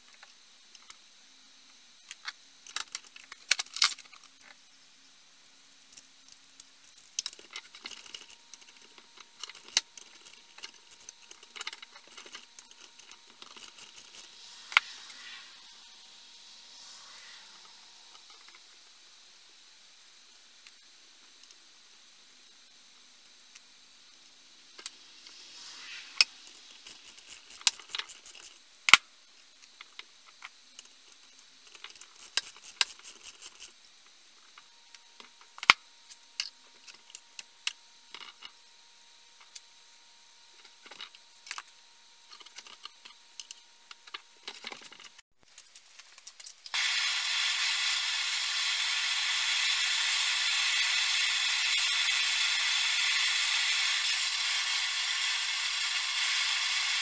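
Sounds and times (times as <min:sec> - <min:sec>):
loud spraying hiss: 0:12.4 - 0:20.1, 0:24.3 - 0:28.4, 0:46.7 - 0:57.0.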